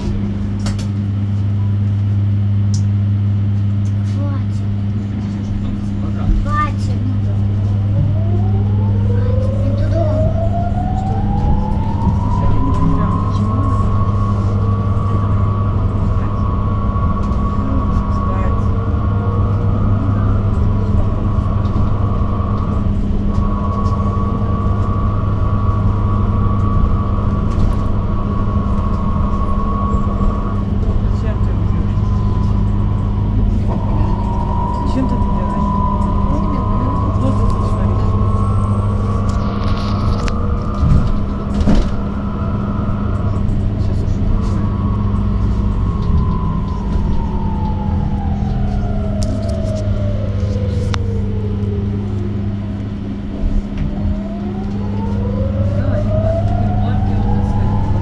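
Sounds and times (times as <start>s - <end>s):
bus cabin hum: 0.0s - 58.0s
high whine of electric drive: 0.0s - 58.0s
rumbling background: 0.0s - 58.0s.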